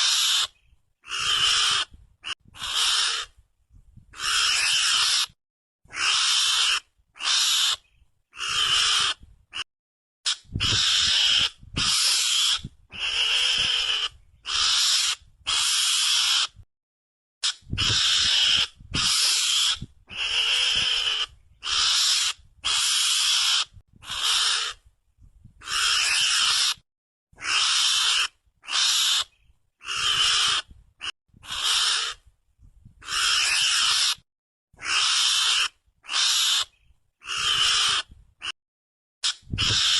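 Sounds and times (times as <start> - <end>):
mongoose hissy high cries: 0.0 - 3.3, 4.2 - 7.8, 8.4 - 9.6, 10.3 - 16.6, 17.4 - 24.8, 25.6 - 26.8, 27.4 - 30.7, 31.4 - 32.2, 33.0 - 34.2, 34.8 - 38.5, 39.2 - 39.9.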